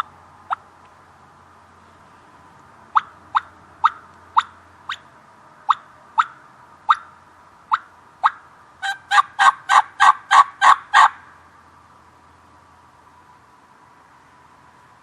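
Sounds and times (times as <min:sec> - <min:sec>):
turkey call clucks: 0:00.0 - 0:00.6, 0:02.9 - 0:05.0, 0:05.7 - 0:07.1, 0:07.7 - 0:11.2
turkey call raspy yelps: 0:05.7 - 0:07.1, 0:07.7 - 0:11.2.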